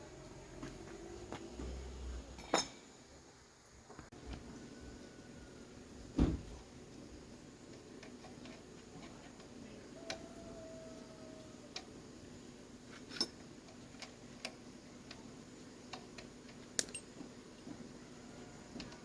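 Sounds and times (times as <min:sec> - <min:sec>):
faint steady hum: 0:00.0 - 0:19.0
light metallic clicks and taps: 0:15.9 - 0:17.2.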